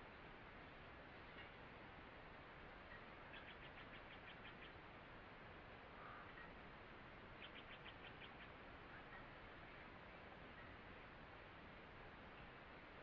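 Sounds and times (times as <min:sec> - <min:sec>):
steady low hiss: 0:00.0 - 0:13.0
soft bird chirps: 0:02.9 - 0:04.8, 0:07.4 - 0:09.9.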